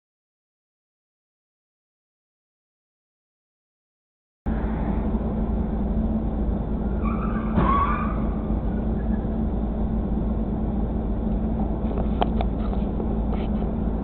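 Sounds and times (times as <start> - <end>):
car road and engine noise: 4.5 - 14.0
short squeal: 6.9 - 9.3.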